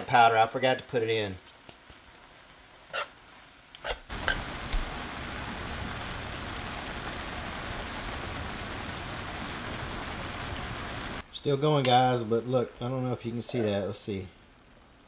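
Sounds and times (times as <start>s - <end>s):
cabbage sizzling in a skillet: 1.4s - 11.2s.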